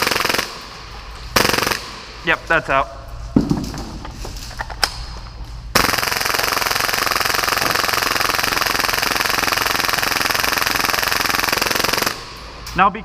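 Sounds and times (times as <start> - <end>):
airsoft pistol full-auto burst: 0.0 - 0.6, 1.4 - 2.0, 5.8 - 12.3.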